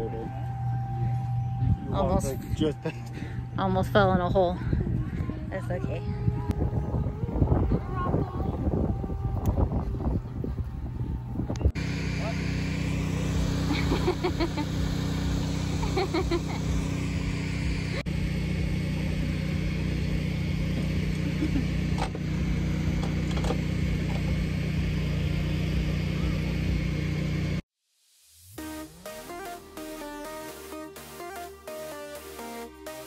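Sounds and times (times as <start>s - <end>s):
vehicle engine running: 0.0s - 27.6s
electronic music: 11.6s - 21.5s, 28.2s - 33.0s.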